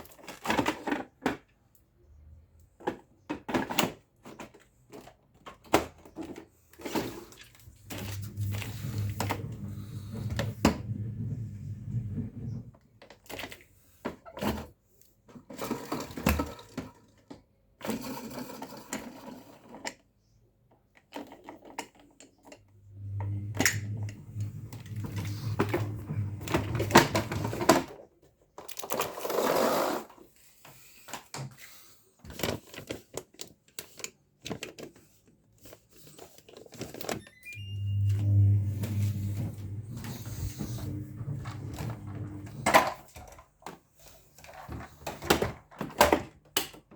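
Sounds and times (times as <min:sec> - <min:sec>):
plastic vacuum parts clicking and rattling: 0:00.0 - 0:01.7, 0:02.8 - 0:09.6, 0:13.0 - 0:20.1, 0:20.8 - 0:22.7, 0:23.6 - 0:29.5, 0:32.2 - 0:37.2, 0:41.4 - 0:46.9
low hum: 0:22.9 - 0:26.9, 0:37.3 - 0:42.7.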